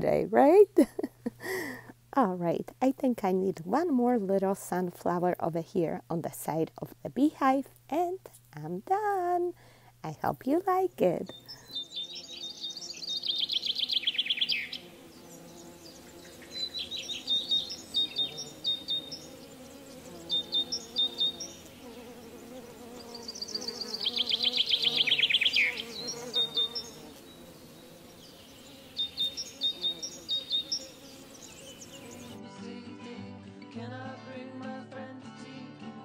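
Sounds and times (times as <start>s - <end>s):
bird chirping in trills: 11.2s - 32.4s.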